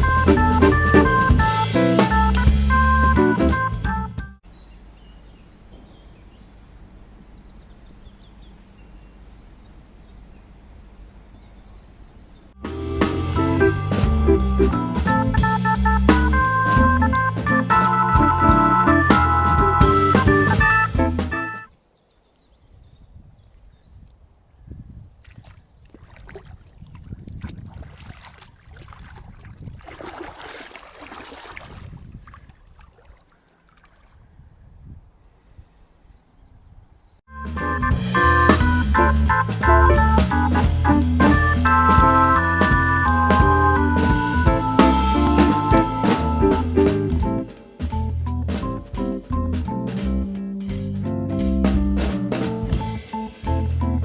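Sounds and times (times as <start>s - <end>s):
low wind rumble: 0.0s - 21.5s, 22.6s - 25.8s, 31.6s - 32.6s, 34.2s - 54.0s
small birds chirping: 0.0s - 26.1s, 33.1s - 54.0s
wind buffeting microphone: 22.6s - 30.4s, 31.5s - 33.2s, 34.1s - 35.7s
rustling hiss: 38.0s - 54.0s.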